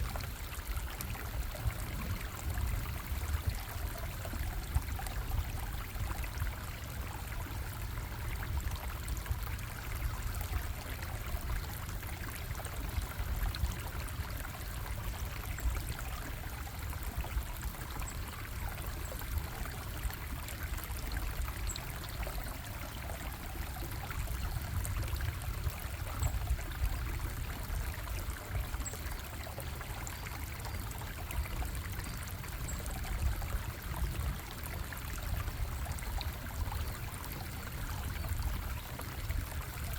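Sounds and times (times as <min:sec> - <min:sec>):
stream water bubbling: 0:00.0 - 0:39.9.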